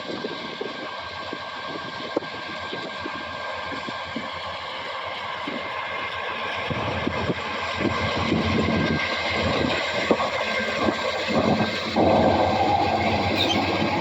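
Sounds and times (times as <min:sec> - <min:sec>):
freight train rolling rumble: 0:00.0 - 0:14.0
wind buffeting microphone: 0:06.6 - 0:14.0.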